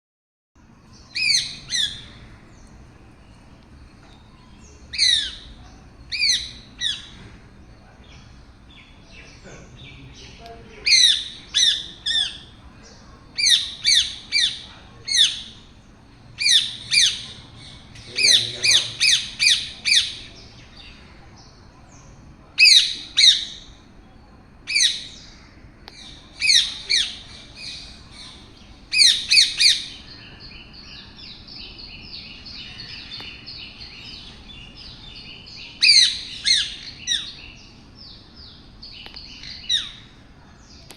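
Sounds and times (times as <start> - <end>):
parrot squawking: 10.8 - 12.5, 13.4 - 15.6, 35.8 - 37.4.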